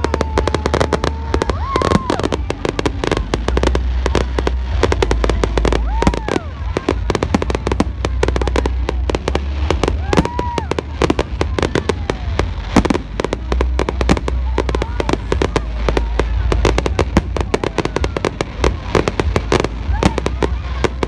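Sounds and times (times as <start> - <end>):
fireworks crackling and banging: 0.0 - 21.0
low rumble: 0.0 - 21.0
whistling fireworks: 0.0 - 21.0.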